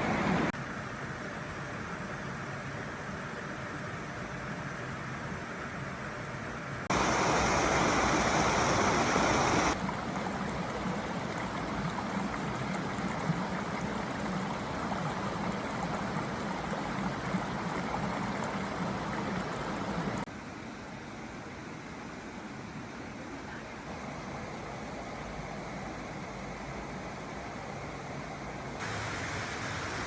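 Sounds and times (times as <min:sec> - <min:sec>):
stream water rushing: 0:06.9 - 0:20.3, 0:28.8 - 0:30.0.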